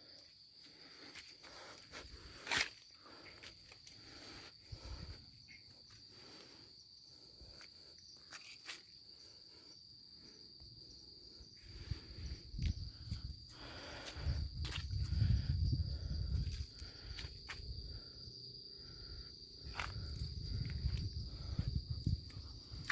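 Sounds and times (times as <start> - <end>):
crickets trilling: 0.0 - 22.9.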